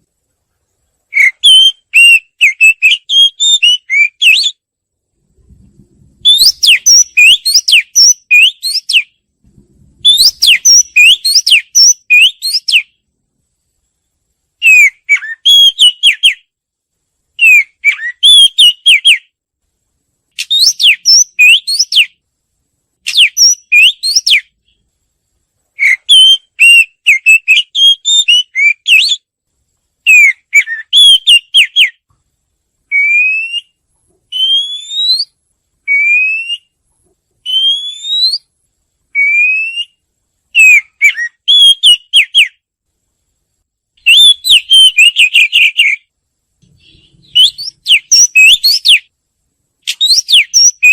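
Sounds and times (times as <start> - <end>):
bird singing whistled phrases: 1.1 - 4.6, 6.2 - 9.2, 10.0 - 13.0, 14.6 - 16.5, 17.4 - 19.3, 20.4 - 22.2, 23.1 - 24.5, 25.8 - 29.2, 30.0 - 32.0, 32.9 - 36.8, 37.4 - 38.5, 39.2 - 40.0, 40.6 - 42.6, 44.0 - 46.1, 46.8 - 49.1, 49.9 - 50.9.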